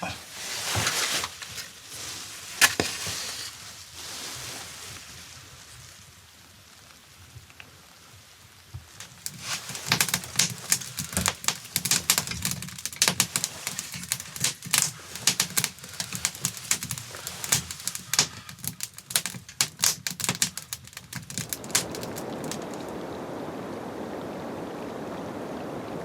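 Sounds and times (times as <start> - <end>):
dense crackling and snapping: 0.0 - 3.6, 8.8 - 23.2
steady rushing hiss: 0.0 - 26.0.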